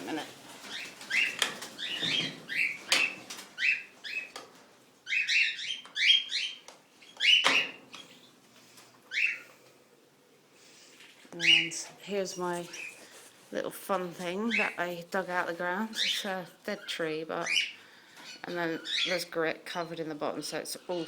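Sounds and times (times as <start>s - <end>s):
cockatiels chirping: 0.1s - 4.4s, 5.0s - 8.3s, 9.1s - 9.5s.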